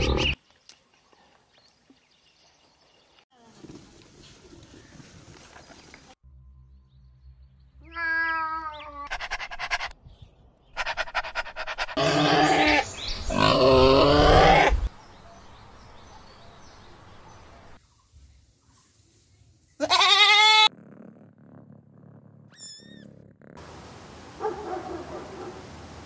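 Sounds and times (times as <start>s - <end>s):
cat meowing: 7.8s - 9.1s, 22.5s - 23.1s
pig grunting: 10.8s - 14.9s
pig squealing: 10.8s - 14.9s.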